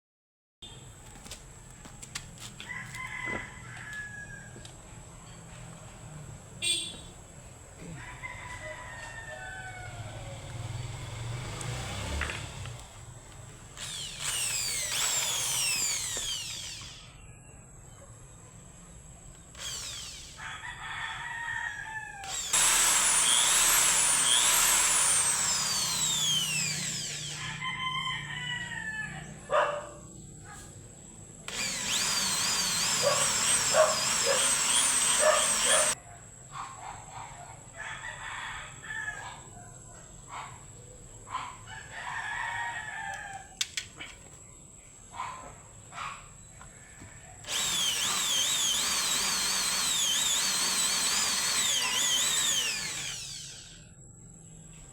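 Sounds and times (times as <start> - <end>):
roosters crowing: 2.6 - 4.8, 7.8 - 11.0, 19.6 - 29.6, 31.5 - 36.0, 37.7 - 39.8, 41.6 - 43.6
power tool running: 10.4 - 17.1, 19.4 - 20.4, 22.2 - 27.4, 31.5 - 36.0, 47.4 - 53.9.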